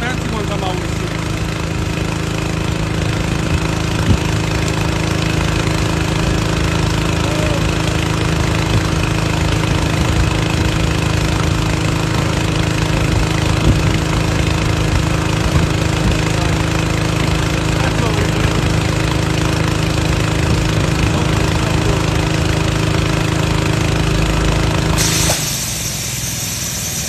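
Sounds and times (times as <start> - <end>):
air compressor running: 0.0 - 27.0.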